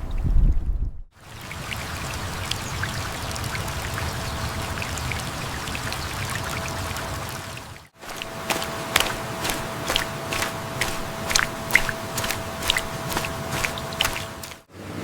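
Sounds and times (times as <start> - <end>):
pouring running water: 1.2 - 14.7
water droplet ticks: 8.1 - 14.6.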